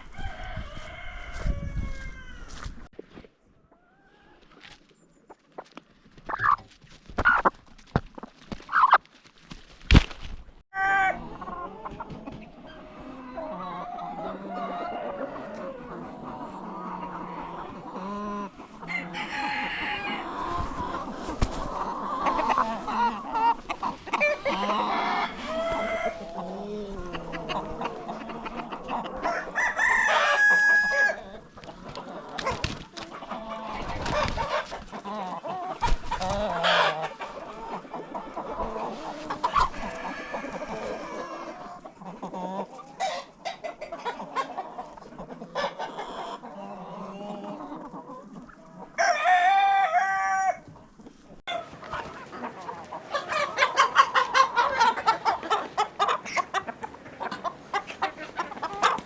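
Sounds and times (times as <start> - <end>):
rooster crowing: 0.0 - 2.6, 18.9 - 20.2, 24.4 - 26.2, 29.2 - 31.2, 39.9 - 41.4, 49.0 - 50.6
chickens clucking: 0.0 - 9.0, 10.8 - 59.0.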